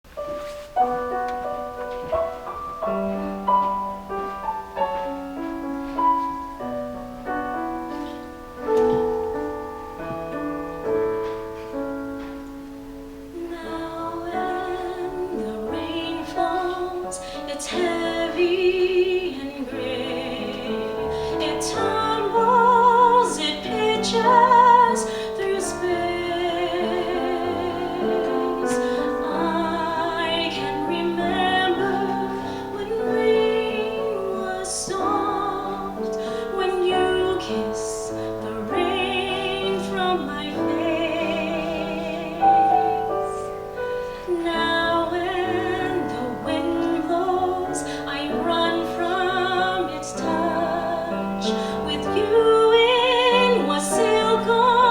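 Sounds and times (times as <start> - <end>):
piano accompaniment: 0.0 - 54.9
woman singing with vibrato: 13.2 - 54.9.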